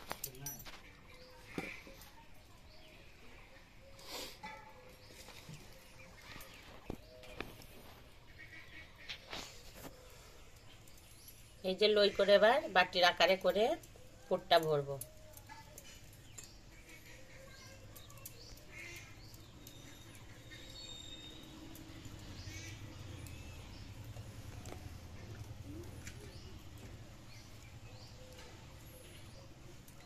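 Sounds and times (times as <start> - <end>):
faint bird chirps and calls: 15.0 - 30.0.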